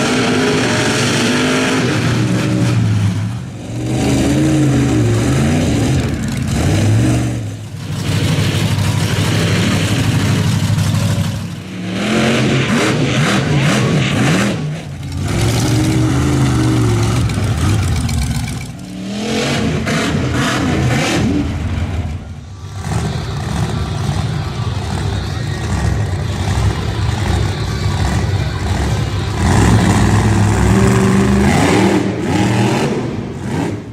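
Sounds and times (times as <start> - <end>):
truck engines revving: 0.0 - 33.9.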